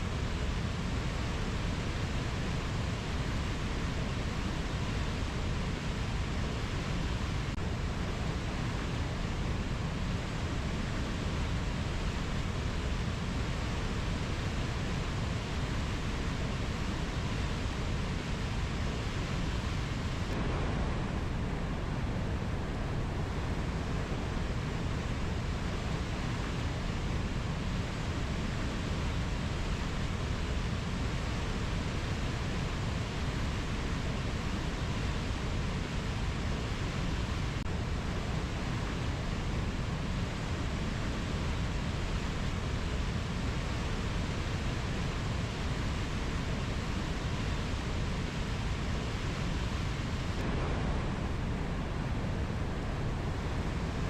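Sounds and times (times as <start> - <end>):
rainforest ambience rushing: 13.6 - 54.0.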